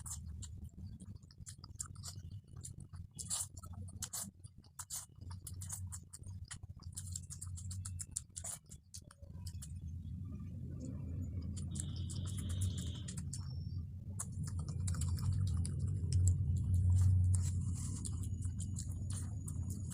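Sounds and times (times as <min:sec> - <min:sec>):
chewing clicks and smacks: 0:00.0 - 0:10.0, 0:10.7 - 0:19.9
steady low hum: 0:00.0 - 0:19.9.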